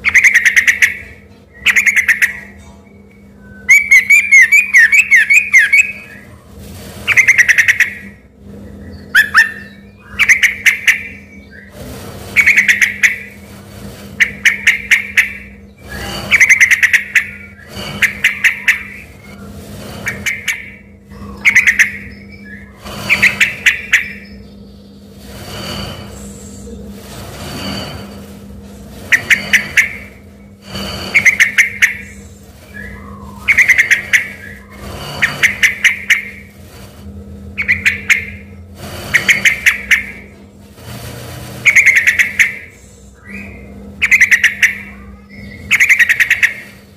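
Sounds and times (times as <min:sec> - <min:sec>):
bulbul singing: 0:00.0 - 0:06.2, 0:07.1 - 0:08.2, 0:08.8 - 0:11.7, 0:12.4 - 0:13.4, 0:14.2 - 0:19.4, 0:20.0 - 0:25.1, 0:31.1 - 0:36.5, 0:37.6 - 0:38.5, 0:41.6 - 0:46.7.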